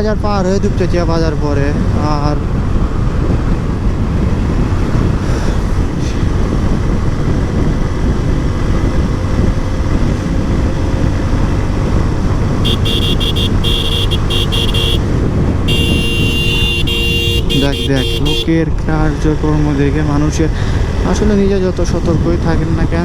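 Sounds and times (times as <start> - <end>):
motorcycle engine rumble: 0.0 - 23.0
wind: 0.0 - 23.0
high-pitched vehicle horn honks: 12.6 - 18.5.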